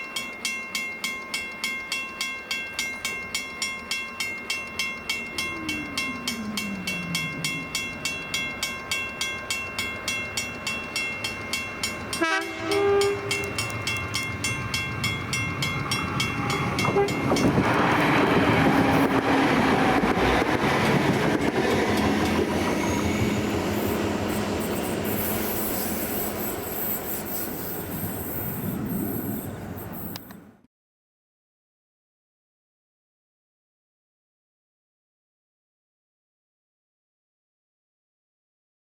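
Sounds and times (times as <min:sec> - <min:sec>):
level-crossing bell ringing: 0:00.0 - 0:30.0
train wheels rumbling on rail: 0:00.9 - 0:30.5
train horn: 0:12.2 - 0:13.6, 0:16.4 - 0:20.4.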